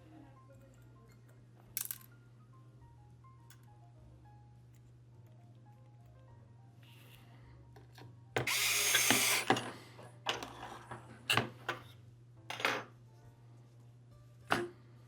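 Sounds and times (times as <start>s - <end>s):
tool whirring on plastic: 8.4s - 11.5s.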